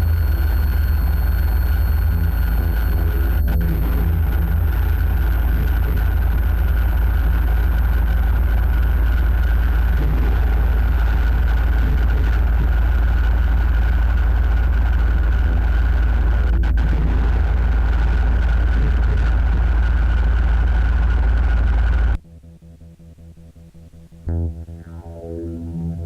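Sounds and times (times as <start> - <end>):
constant high whine: 0.0 - 26.0
low droning rumble: 0.0 - 26.0.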